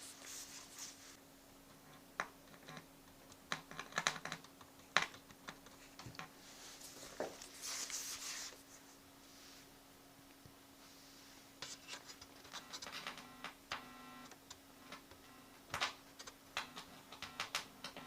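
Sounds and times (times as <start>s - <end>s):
faint steady hum: 0.0s - 18.0s
scraping rustles: 5.8s - 9.7s
small clicks and taps: 12.2s - 18.0s.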